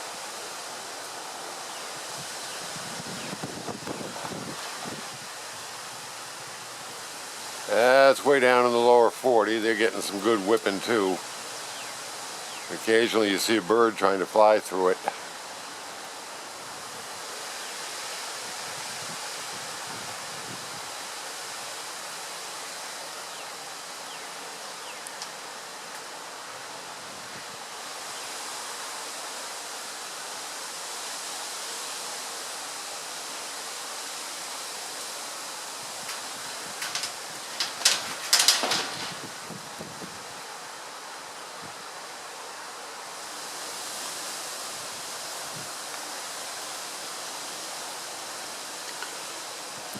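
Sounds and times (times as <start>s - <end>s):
wind rushing through foliage: 0.0s - 49.9s
sharp clicks or knocks: 36.1s - 39.3s.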